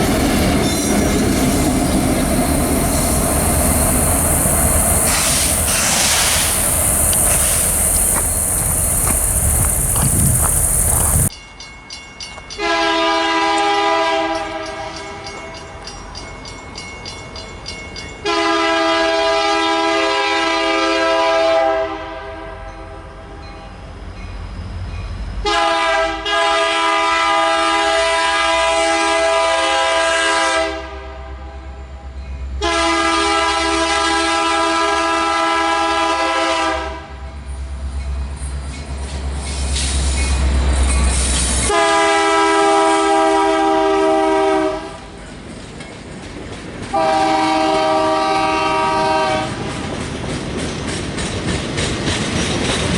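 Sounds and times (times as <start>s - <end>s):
train rumbling: 0.0s - 11.4s, 12.4s - 52.9s
locomotive air horn blasts: 12.6s - 15.0s, 18.2s - 22.7s, 25.4s - 31.6s, 32.6s - 37.2s, 41.7s - 45.0s, 47.0s - 49.6s.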